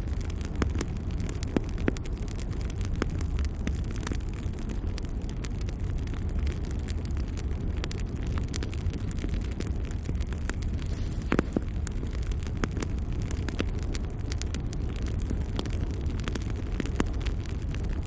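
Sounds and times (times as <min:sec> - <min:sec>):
fire low rumble: 0:00.0 - 0:18.0
logs crackling and popping: 0:00.0 - 0:18.0.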